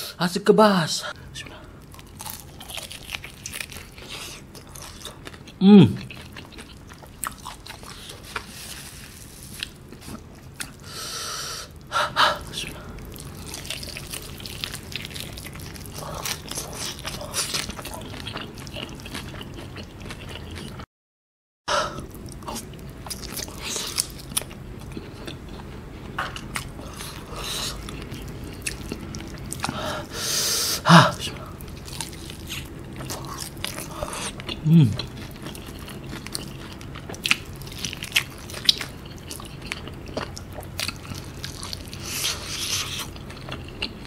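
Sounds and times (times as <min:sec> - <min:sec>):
chewing with wet mouth clicks: 0:22.4 - 0:29.8, 0:31.6 - 0:44.0.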